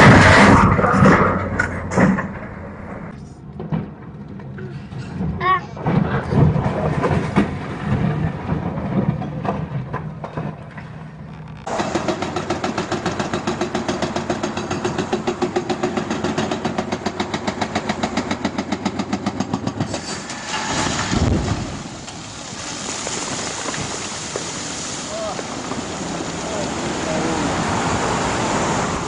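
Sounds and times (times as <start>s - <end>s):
demolition debris clattering: 0.0s - 28.2s
excavator engine running: 0.0s - 29.0s
hydraulic breaker hammering rock: 11.7s - 21.8s
rushing water and spray: 20.0s - 29.0s
rock slab crashing into water: 20.5s - 27.0s.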